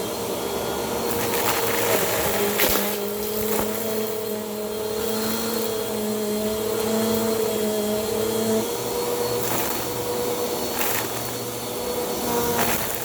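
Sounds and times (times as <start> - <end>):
vacuum cleaner motor whine: 0.0 - 13.0
debris crackling in vacuum: 1.0 - 5.6, 9.2 - 13.0.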